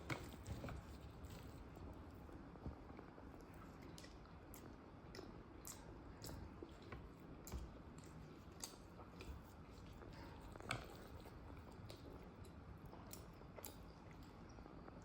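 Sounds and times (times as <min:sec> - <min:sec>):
person chewing food: 0:03.3 - 0:14.4.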